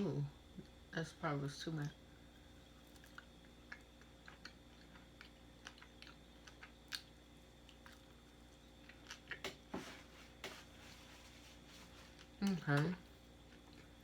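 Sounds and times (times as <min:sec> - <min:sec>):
chewing with wet mouth clicks: 0:02.8 - 0:09.6.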